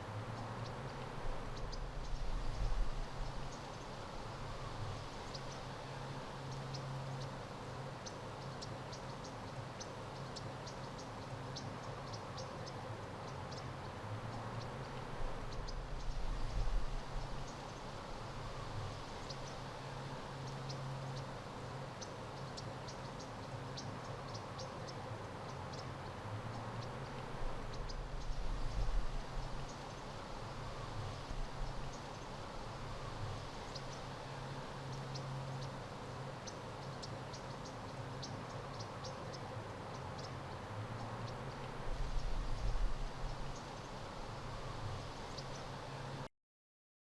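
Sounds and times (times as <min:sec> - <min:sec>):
insect chirps: 0:26.8 - 0:40.5.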